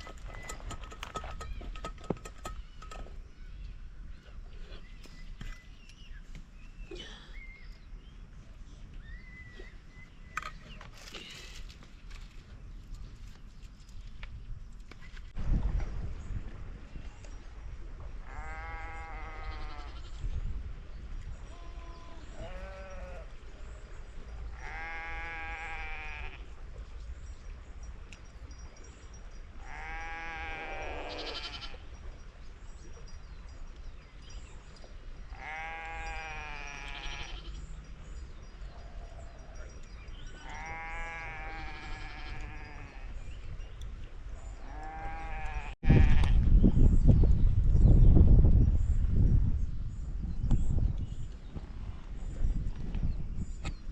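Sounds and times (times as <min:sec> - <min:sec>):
farm animals bleating: 0:18.2 - 0:20.2, 0:21.5 - 0:23.3, 0:24.5 - 0:26.5, 0:29.6 - 0:31.9, 0:35.3 - 0:37.7, 0:40.3 - 0:43.3, 0:44.6 - 0:46.4.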